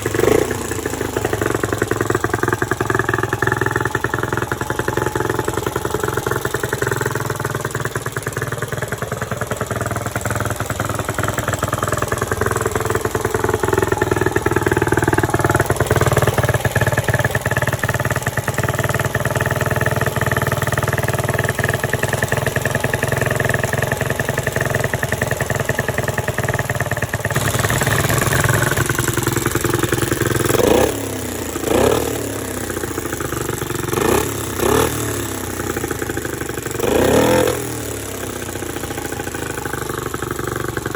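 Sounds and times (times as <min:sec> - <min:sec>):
engine revving: 0:00.0 - 0:01.6, 0:27.3 - 0:35.8, 0:36.8 - 0:38.8
motorcycle engine running: 0:00.0 - 0:40.9.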